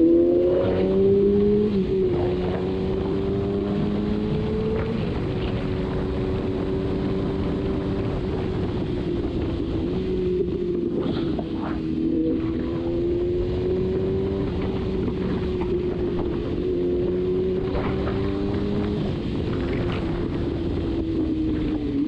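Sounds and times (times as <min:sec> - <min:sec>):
motorcycle engine running: 0:00.0 - 0:22.0
wind rushing over microphone: 0:00.0 - 0:22.0.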